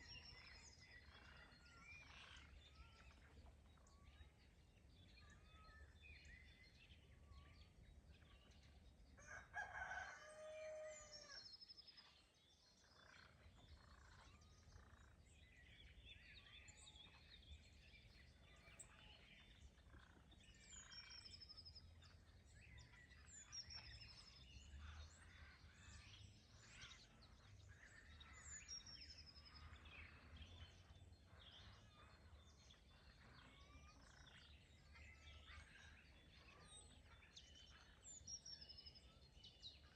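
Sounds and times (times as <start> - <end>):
songbirds chirping: 0.0 - 39.9
rooster crowing: 9.2 - 11.4.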